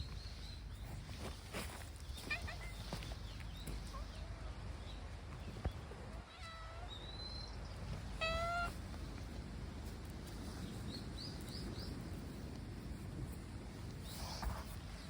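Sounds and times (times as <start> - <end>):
cat meowing: 6.3 - 7.0, 8.2 - 8.8.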